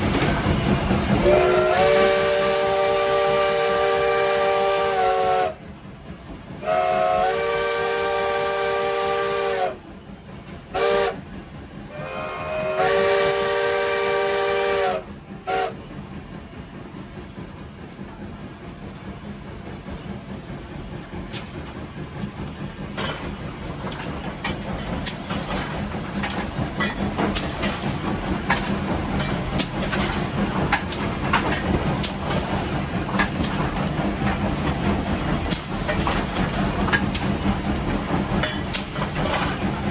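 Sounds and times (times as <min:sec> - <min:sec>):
steam hissing: 0:00.0 - 0:39.9
steam locomotive running: 0:00.0 - 0:39.9
steam locomotive whistle blasts: 0:01.2 - 0:05.6, 0:06.6 - 0:09.8, 0:10.7 - 0:11.3, 0:11.9 - 0:15.8.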